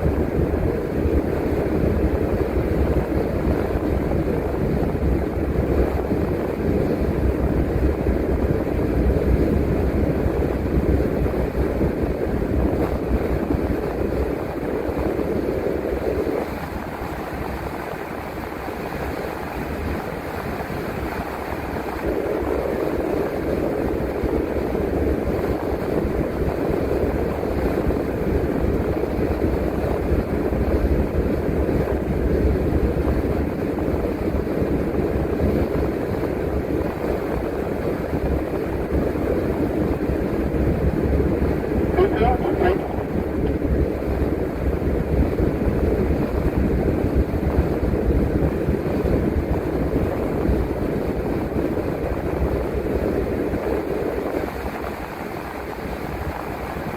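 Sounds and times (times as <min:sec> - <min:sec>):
bus engine and road rumble: 0:41.2 - 0:44.4.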